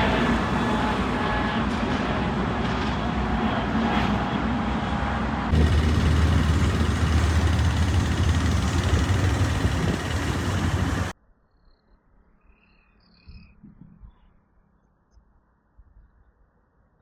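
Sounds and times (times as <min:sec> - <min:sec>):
jet engine roar: 0:05.5 - 0:11.1.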